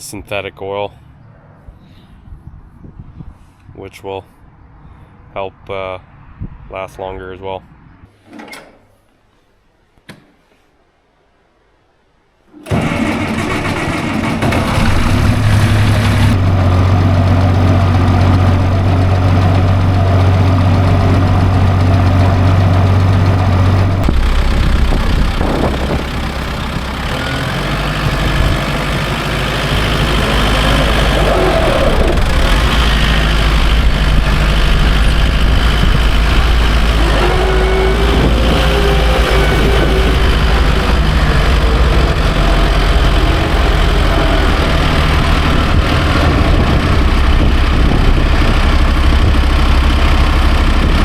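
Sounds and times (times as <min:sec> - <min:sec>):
tractor engine running: 0:12.5 - 0:51.0.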